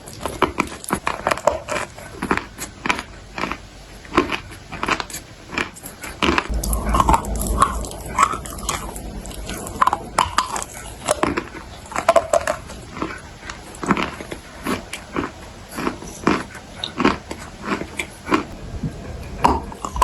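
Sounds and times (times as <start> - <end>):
crunching and chewing dry clay: 0.0 - 6.5, 12.0 - 18.6.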